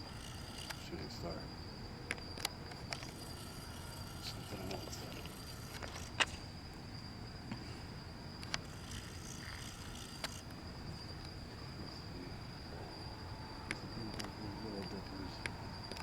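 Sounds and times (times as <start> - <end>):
crickets trilling: 0.0 - 16.0
sharp clicks: 8.4 - 10.6.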